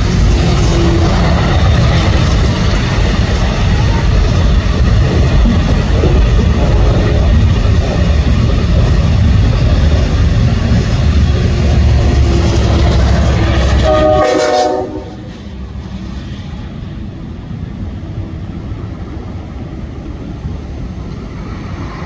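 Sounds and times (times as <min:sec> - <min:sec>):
passenger train rumbling past: 0:00.0 - 0:22.0
train horn: 0:13.2 - 0:15.4.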